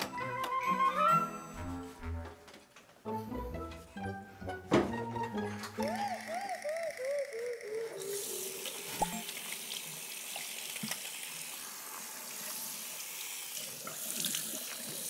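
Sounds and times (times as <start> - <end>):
tap water running into sink: 8.2 - 15.0.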